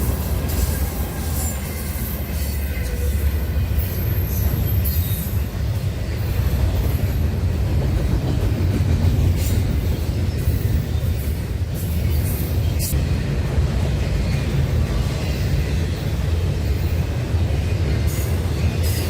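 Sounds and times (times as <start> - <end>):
high wheel squeal: 0.0 - 5.5
freight train rumbling on track: 0.0 - 19.0.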